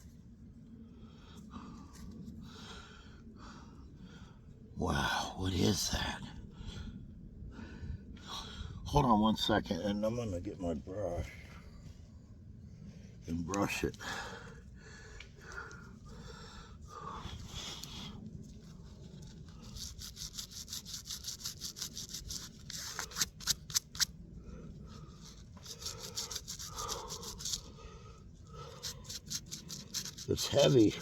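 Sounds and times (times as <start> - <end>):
rubbing and handling sounds: 18.5 - 24.1, 25.2 - 27.7, 28.6 - 31.0
brush scrubbing metal: 19.3 - 24.1, 25.2 - 27.7, 28.6 - 31.0.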